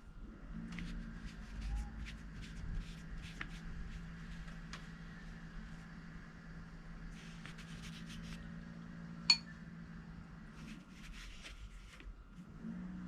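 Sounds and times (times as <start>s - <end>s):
low steady hum: 0.0s - 12.9s
paintbrush brushing on paper: 0.9s - 4.6s, 7.1s - 8.5s, 10.6s - 12.0s
sharp ringing clink: 9.3s - 9.5s.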